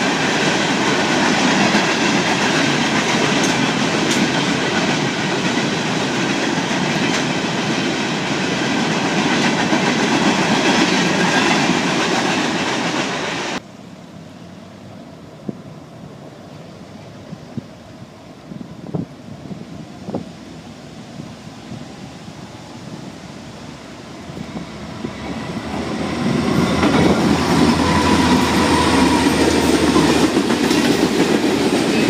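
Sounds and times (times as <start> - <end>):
train wheels clattering on rails: 0.0 - 13.6, 24.2 - 32.0
wind noise on microphone: 17.1 - 32.0.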